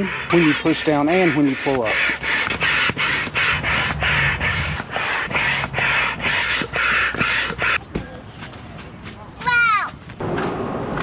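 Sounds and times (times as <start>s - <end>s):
hand air pump whooshes: 0.0s - 7.8s.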